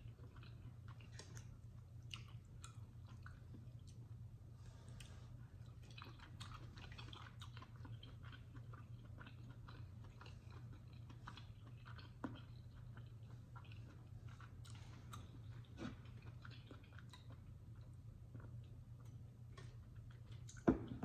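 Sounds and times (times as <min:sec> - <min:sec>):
wet chewing: 0:00.0 - 0:04.1, 0:04.9 - 0:21.0
low steady hum: 0:00.0 - 0:21.0.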